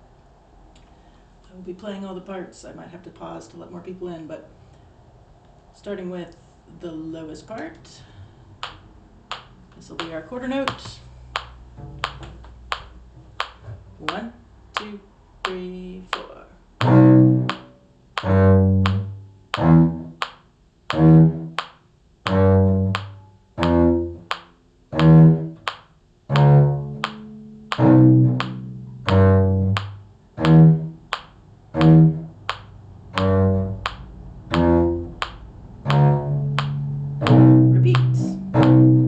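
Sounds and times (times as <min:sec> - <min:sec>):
cello plucked bass line: 0:09.3 - 0:39.0.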